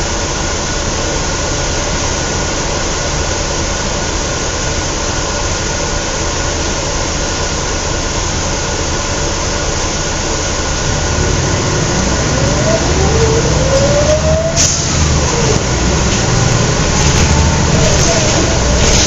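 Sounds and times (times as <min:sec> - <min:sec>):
bus diesel engine under load: 0:00.0 - 0:19.0
faint rising whine: 0:10.8 - 0:19.0.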